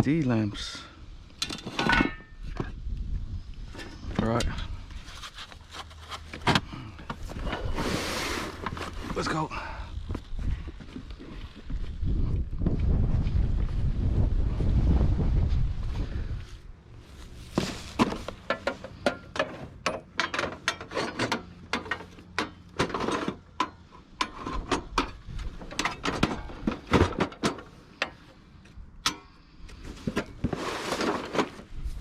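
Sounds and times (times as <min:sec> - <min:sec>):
rustling: 0:04.8 - 0:06.5, 0:15.6 - 0:18.5.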